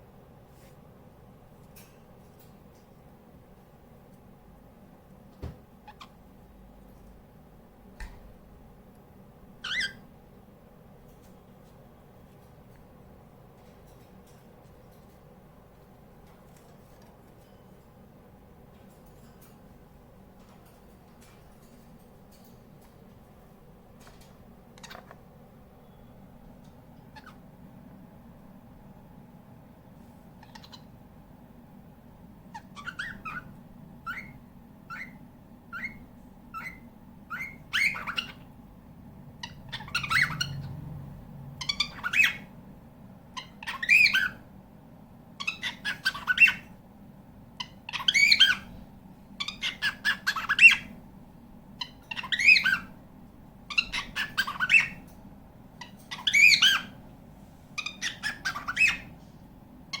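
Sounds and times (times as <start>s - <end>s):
cockatiel calling: 5.8s - 6.2s, 9.6s - 10.0s, 27.1s - 27.4s, 30.4s - 30.9s, 32.5s - 38.5s, 39.4s - 40.7s, 41.6s - 42.5s, 43.4s - 44.4s, 45.4s - 46.8s, 47.6s - 48.8s, 49.4s - 51.0s, 51.8s - 53.0s, 53.7s - 55.1s, 55.8s - 57.0s, 57.8s - 59.1s.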